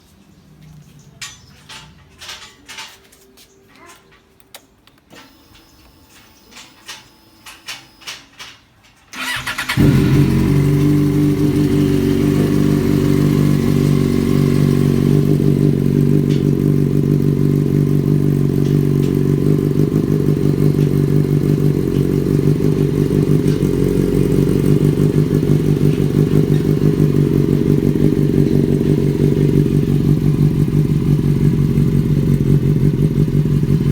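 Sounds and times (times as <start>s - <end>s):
motorcycle engine idling: 9.2s - 33.9s.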